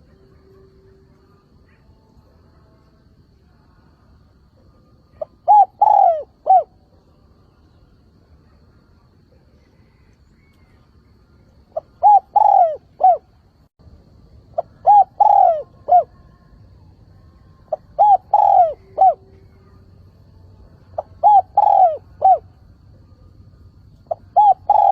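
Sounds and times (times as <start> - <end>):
dove cooing: 5.1 - 6.9, 11.7 - 13.3, 14.5 - 16.3, 17.7 - 19.8, 20.9 - 22.5, 24.0 - 24.9.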